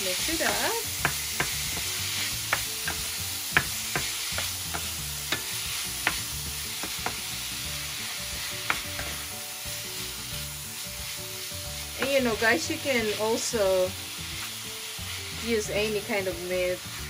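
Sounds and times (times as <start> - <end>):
meat sizzling in oil: 0.0 - 17.0
spatula knocking and scraping pan: 0.1 - 7.4, 8.0 - 9.3, 11.8 - 13.3.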